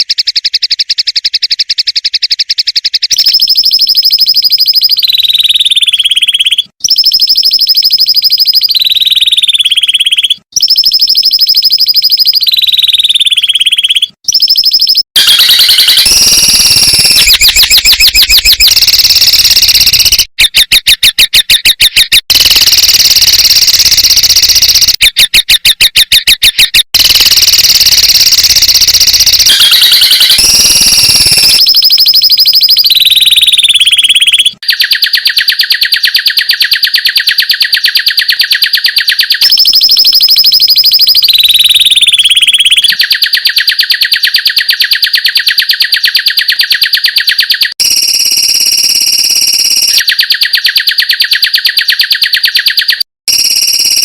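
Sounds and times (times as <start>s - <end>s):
bird song rapid trills: 0.0s - 3.9s.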